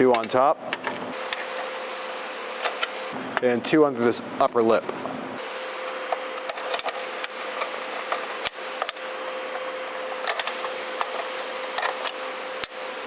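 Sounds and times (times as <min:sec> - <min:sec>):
faint hum: 0:01.0 - 0:03.4, 0:04.2 - 0:13.0
hex key and screws clicking: 0:05.4 - 0:13.0
steady hiss: 0:05.4 - 0:13.0.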